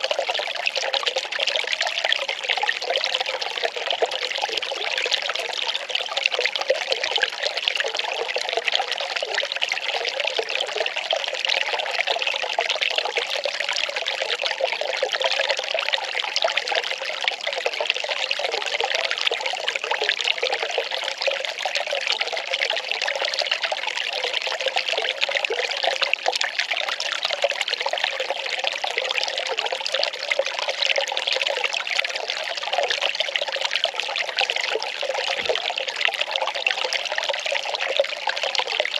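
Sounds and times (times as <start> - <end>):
water pouring and splashing: 17.4 - 38.9.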